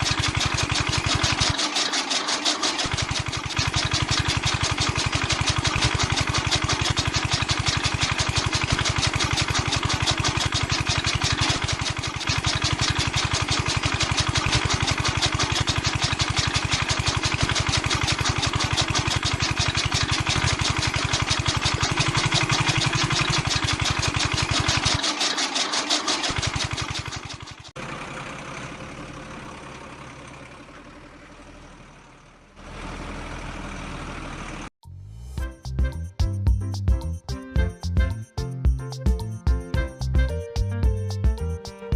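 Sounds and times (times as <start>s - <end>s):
chaff cutter winding down: 0.0s - 27.8s
small diesel engine running: 0.0s - 34.8s.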